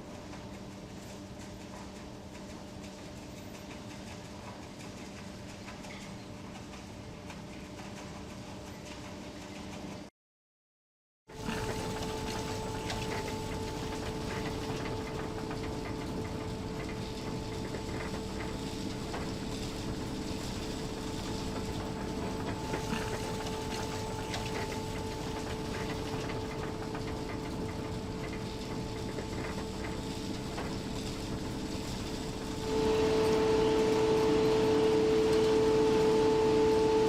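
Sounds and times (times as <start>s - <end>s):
machinery hum: 11.3s - 37.0s.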